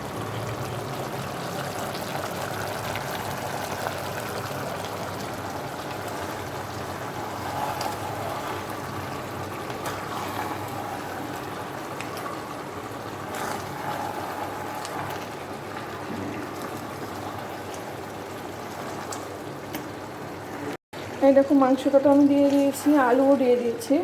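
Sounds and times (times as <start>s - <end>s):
curry sizzling and bubbling in pot: 0.0s - 24.0s.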